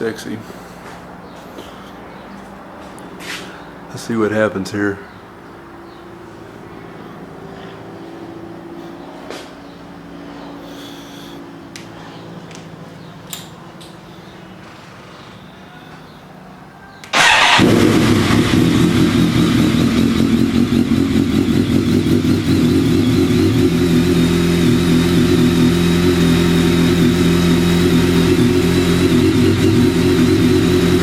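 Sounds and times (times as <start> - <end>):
motorcycle engine starting and idling: 17.0 - 31.0.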